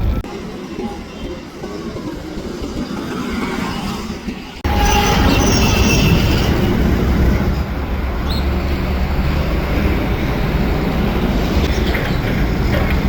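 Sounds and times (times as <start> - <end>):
road vehicle rumbling: 4.6 - 13.0.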